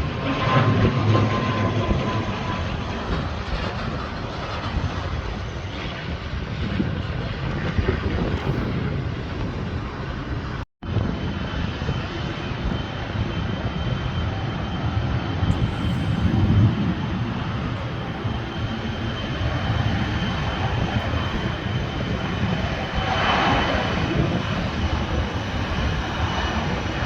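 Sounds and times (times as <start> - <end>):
airplane engine rumble: 0.0 - 27.0
faint high whine: 12.1 - 27.0.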